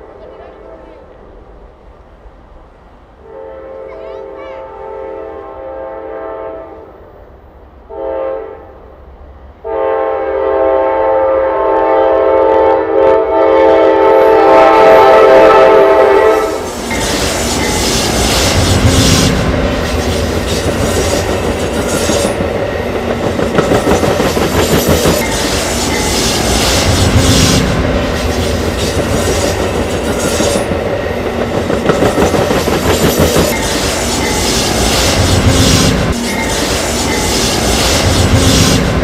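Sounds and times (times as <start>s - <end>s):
train horn: 3.2s - 7.1s, 7.8s - 8.9s, 9.6s - 16.7s
train wheels clattering on rails: 16.5s - 39.0s.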